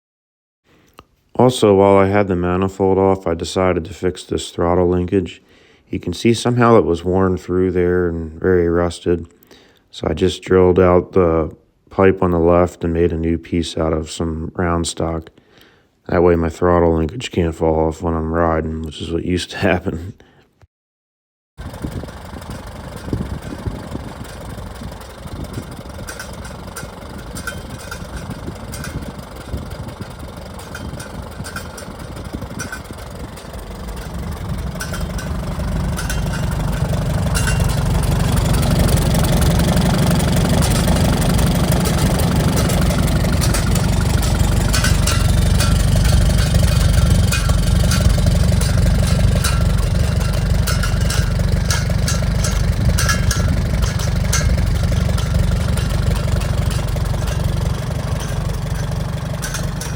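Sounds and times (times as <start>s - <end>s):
tractor engine running: 21.6s - 59.9s.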